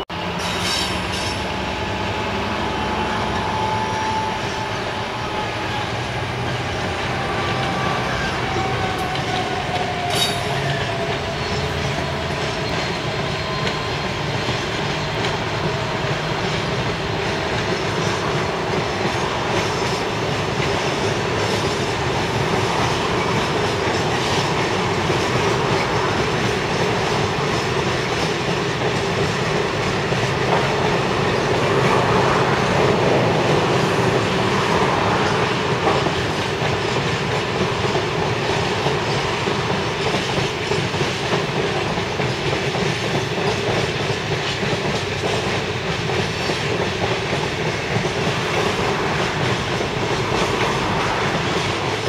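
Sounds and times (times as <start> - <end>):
diesel locomotive engine: 0.0 - 52.0
wheel squeal: 0.3 - 5.9, 6.8 - 15.3
sharp clank: 0.4 - 1.7.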